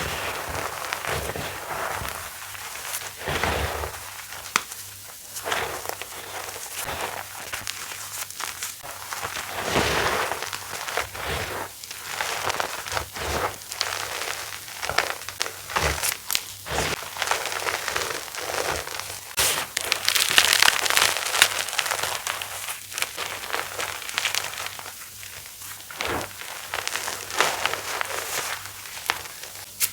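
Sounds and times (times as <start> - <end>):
chalk crunching and crumbling: 0.0 - 29.9.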